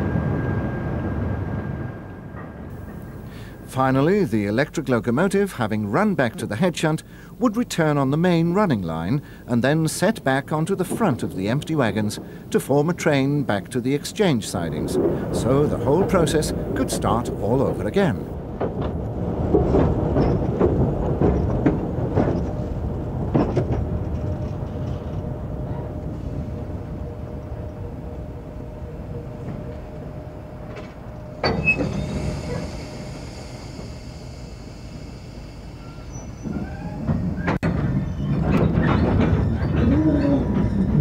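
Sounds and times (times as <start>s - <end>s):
locomotive and wagons rumbling: 0.0s - 41.0s
wagons knocking: 10.3s - 24.4s, 36.4s - 41.0s.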